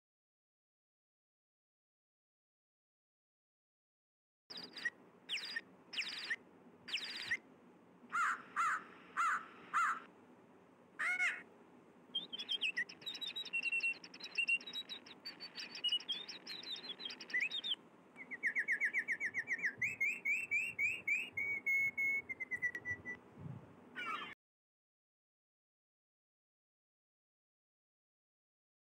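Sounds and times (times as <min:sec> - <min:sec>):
songbirds calling and singing: 0:04.5 - 0:07.4, 0:08.1 - 0:10.1, 0:12.1 - 0:23.2, 0:23.9 - 0:24.4.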